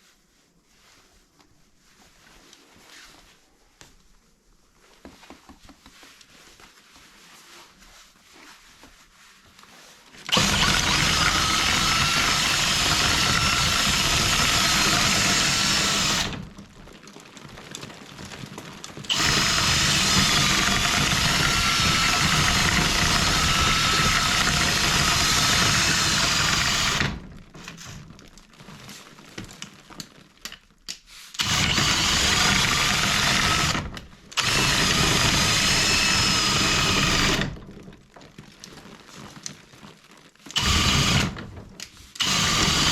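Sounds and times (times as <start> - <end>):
power drill spinning brush: 8.2 - 16.7, 18.4 - 28.2, 31.2 - 37.7, 40.5 - 42.9.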